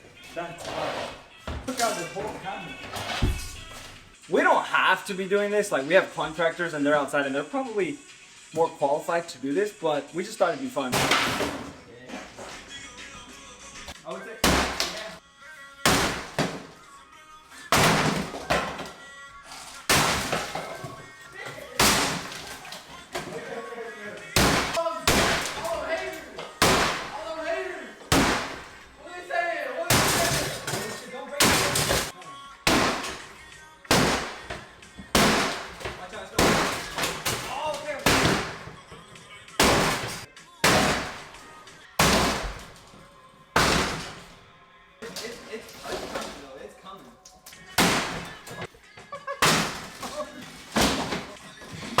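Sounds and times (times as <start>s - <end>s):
background music: 0.0s - 52.0s
heavy demolition thuds: 14.4s - 15.1s, 15.9s - 16.7s, 17.7s - 18.9s, 19.8s - 21.0s, 21.7s - 23.3s, 24.3s - 29.0s, 29.9s - 32.1s, 32.7s - 33.3s, 33.9s - 38.8s, 39.6s - 41.4s, 42.0s - 42.9s, 43.6s - 44.4s, 47.8s - 48.4s.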